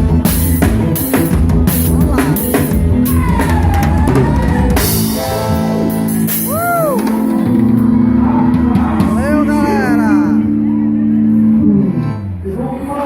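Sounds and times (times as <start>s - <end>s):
drum and cymbal hits: 0.0s - 9.4s
band playing: 0.0s - 12.4s
held notes bending in pitch: 0.0s - 12.6s.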